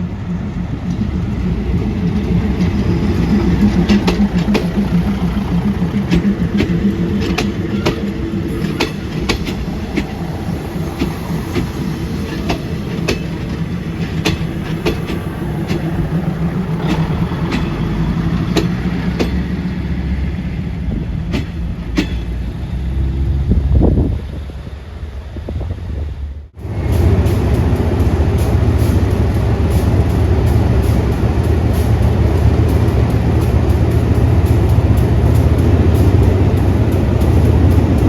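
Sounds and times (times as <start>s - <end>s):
wheels clicking over rail joints: 0.0s - 22.8s
train engine droning: 0.0s - 38.0s.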